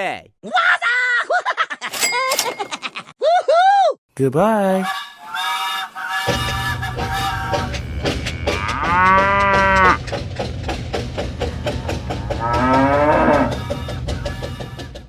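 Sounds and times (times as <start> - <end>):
cow mooing: 7.4 - 10.0, 11.4 - 13.7.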